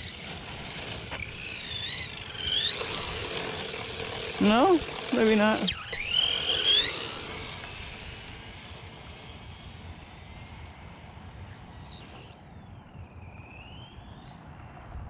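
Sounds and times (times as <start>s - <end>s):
tyre and road noise: 0.0s - 8.2s
rc car motor whine: 0.0s - 14.9s.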